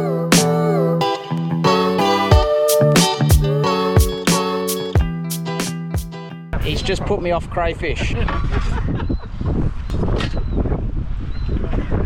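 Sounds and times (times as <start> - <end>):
guitar music: 0.3 - 6.6
drum hits: 2.3 - 6.1.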